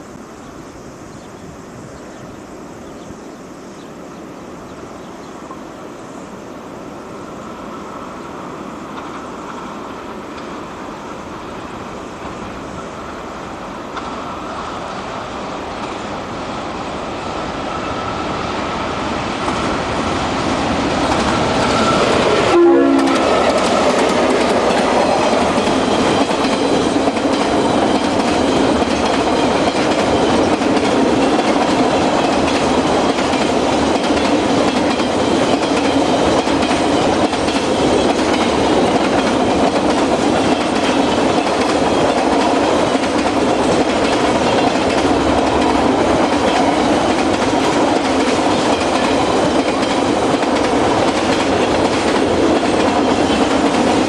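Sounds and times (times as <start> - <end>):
freight train passing: 0.0 - 54.0
train horn: 21.7 - 24.0.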